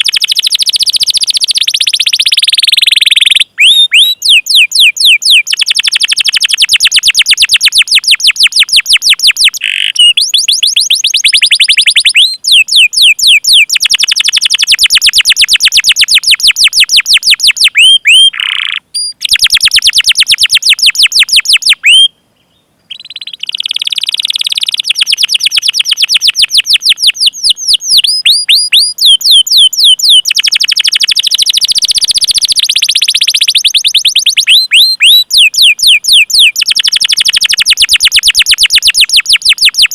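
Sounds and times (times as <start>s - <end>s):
canary singing high chirps: 0.0s - 39.9s.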